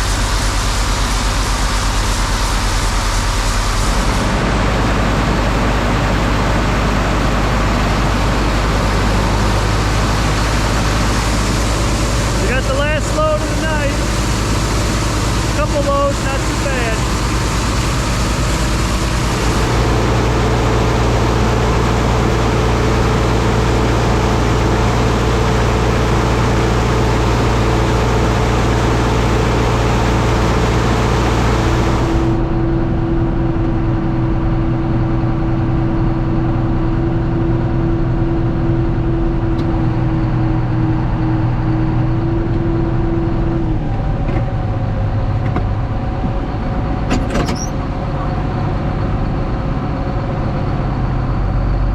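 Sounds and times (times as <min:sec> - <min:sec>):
grain auger rushing hiss: 0:00.0 - 0:05.8
engine with high whine: 0:00.0 - 0:51.9
tractor engine running: 0:00.0 - 0:51.9.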